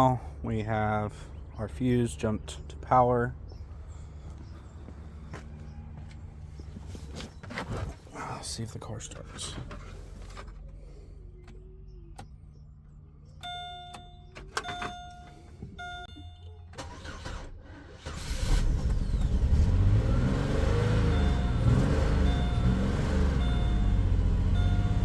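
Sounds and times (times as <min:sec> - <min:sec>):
car warning chimes: 0:13.4 - 0:17.4, 0:20.3 - 0:25.0
car engine cranking and running: 0:13.4 - 0:25.0.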